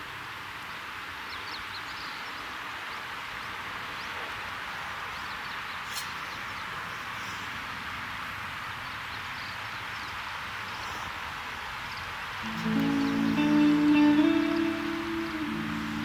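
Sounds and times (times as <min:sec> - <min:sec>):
soft background music: 0:12.4 - 0:16.0.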